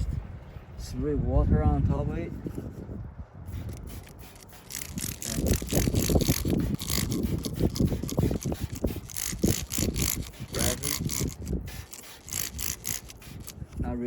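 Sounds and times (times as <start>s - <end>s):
sanding pad rubbing plastic: 3.6s - 13.6s.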